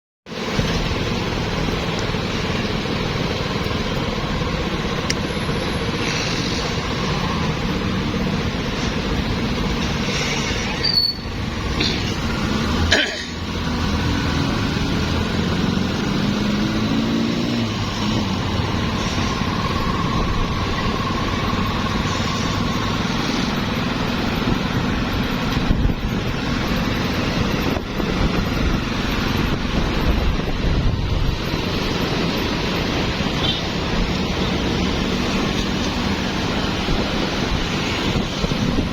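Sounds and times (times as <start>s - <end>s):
street traffic passing: 0.3s - 38.9s
engine revving up: 5.5s - 24.2s.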